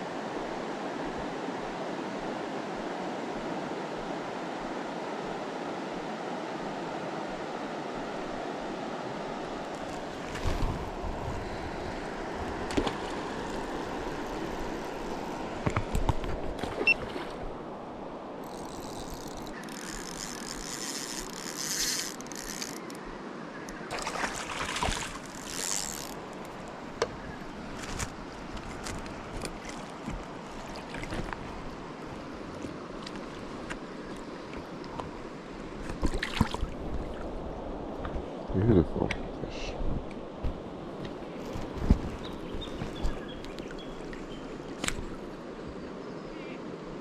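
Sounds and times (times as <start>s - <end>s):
river water rushing: 0.0s - 38.4s
short splashes: 23.9s - 26.2s.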